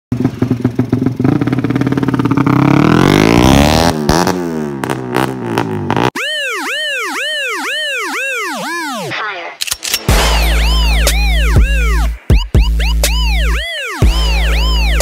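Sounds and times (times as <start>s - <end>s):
motorcycle engine revving: 0.1s - 6.2s
warbling electronic sound effect: 6.0s - 9.5s, 10.1s - 15.0s.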